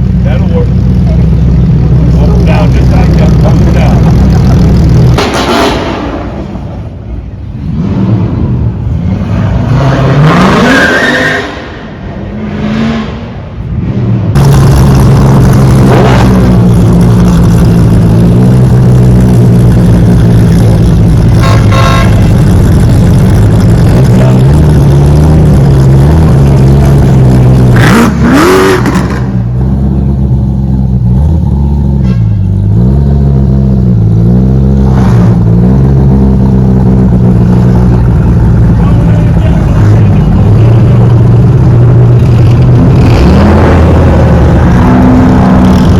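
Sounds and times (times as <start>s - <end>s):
car engine revving: 0.0s - 45.9s.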